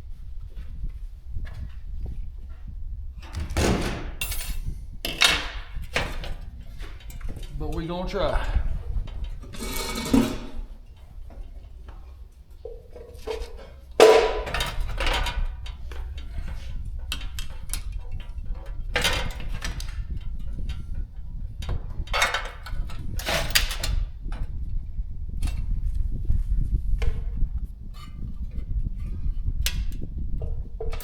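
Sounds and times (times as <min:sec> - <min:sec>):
metal tools clanking and scraping: 0:04.1 - 0:24.0.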